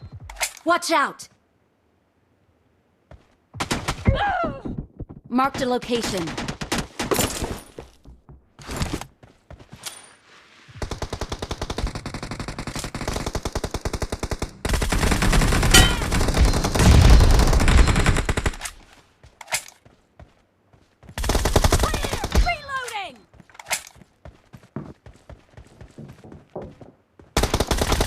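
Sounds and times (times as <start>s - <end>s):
video game automatic gunfire: 10.8s - 18.6s, 27.4s - 28.0s.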